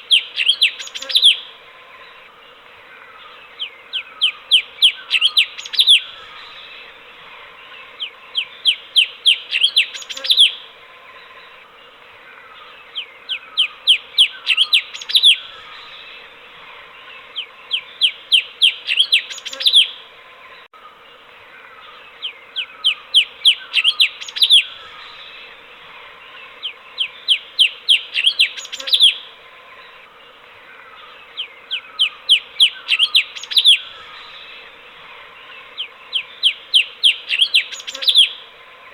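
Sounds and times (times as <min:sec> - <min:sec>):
background hiss: 0:00.0 - 0:38.9.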